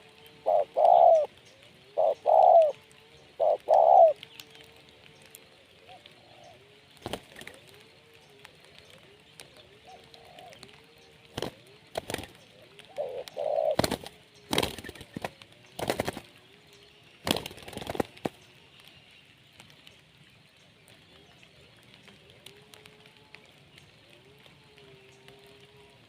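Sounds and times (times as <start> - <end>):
dove cooing: 0.0 - 4.4, 5.0 - 16.3.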